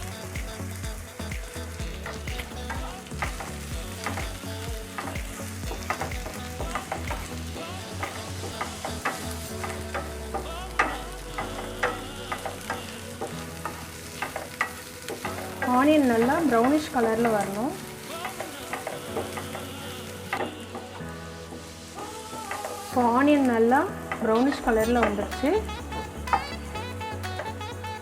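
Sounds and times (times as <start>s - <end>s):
onions sizzling in oil: 0.0s - 10.1s, 10.8s - 20.8s, 21.6s - 23.7s.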